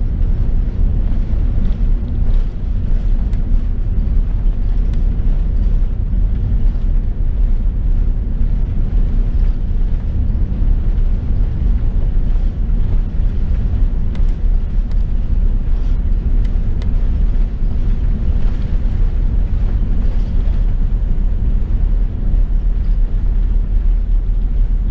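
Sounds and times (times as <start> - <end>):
airplane cabin rumble: 0.0 - 24.9.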